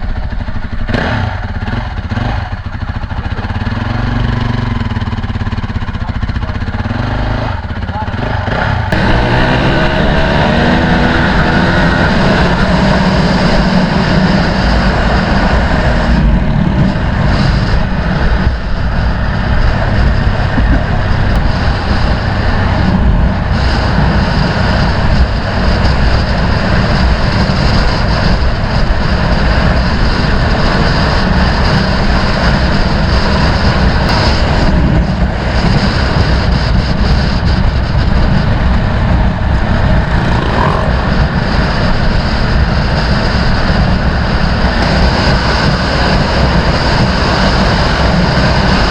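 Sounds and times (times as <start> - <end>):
dirt bike engine running: 0.0 - 48.9
wind rush on microphone: 0.0 - 48.9.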